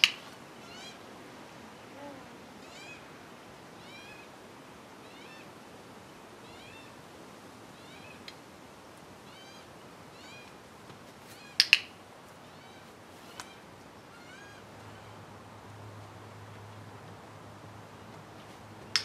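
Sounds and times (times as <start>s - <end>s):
bird calling: 0.0s - 1.0s, 1.8s - 3.2s, 3.8s - 4.4s, 7.8s - 8.3s, 9.2s - 10.6s, 11.2s - 15.3s.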